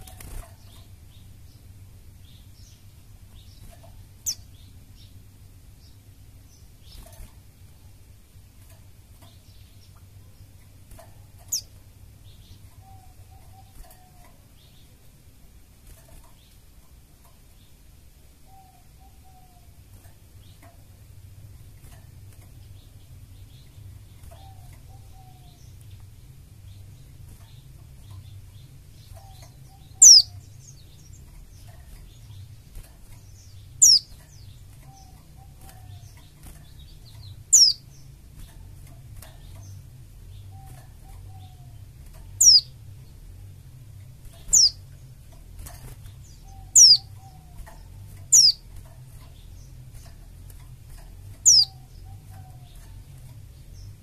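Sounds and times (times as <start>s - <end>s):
steady low hum: 0.0s - 54.0s
bird high-pitched falling calls: 29.2s - 30.5s, 51.4s - 52.8s.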